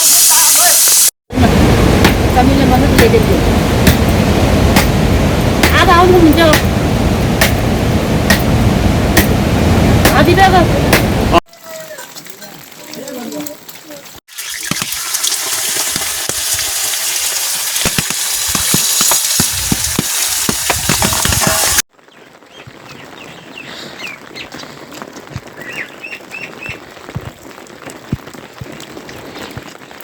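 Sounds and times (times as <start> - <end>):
heavy rain pouring: 0.0 - 14.2, 15.6 - 30.0
soft rain patter and drips: 1.4 - 30.0
bird chirps: 25.6 - 26.8.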